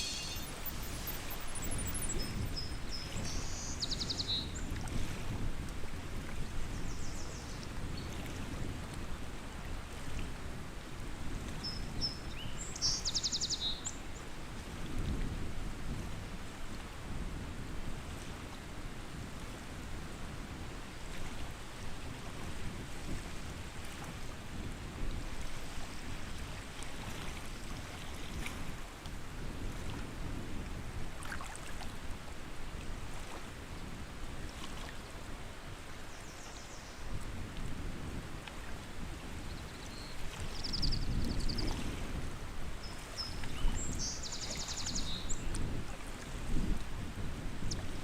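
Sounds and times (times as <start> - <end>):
high bird trills: 0.0 - 3.8
water lapping: 31.2 - 32.0.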